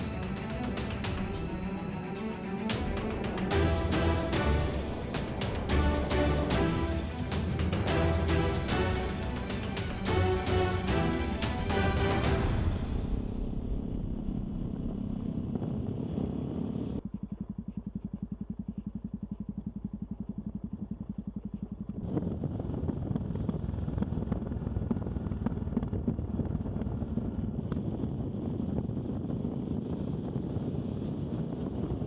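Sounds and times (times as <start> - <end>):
motorcycle engine running: 15.0 - 26.6.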